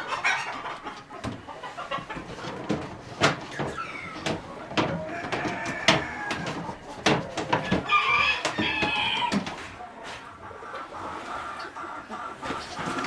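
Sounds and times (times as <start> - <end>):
chickens clucking and calling: 0.0 - 13.0
sharp irregular clicks and knocks: 1.2 - 9.7.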